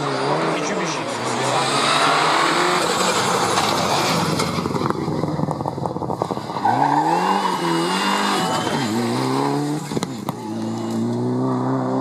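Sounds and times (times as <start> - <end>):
rally car engine accelerating: 0.0 - 12.0.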